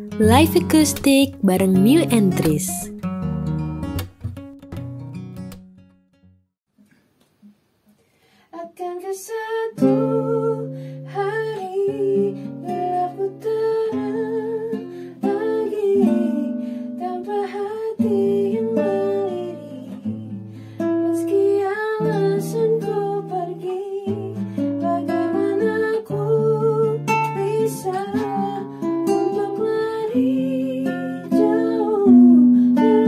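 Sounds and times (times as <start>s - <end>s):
acoustic guitar: 0.0s - 33.0s
person singing: 0.2s - 2.9s.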